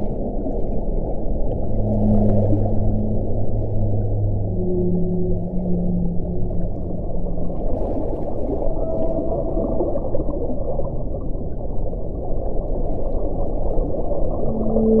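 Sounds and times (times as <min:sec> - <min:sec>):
wind blowing: 0:00.0 - 0:11.2.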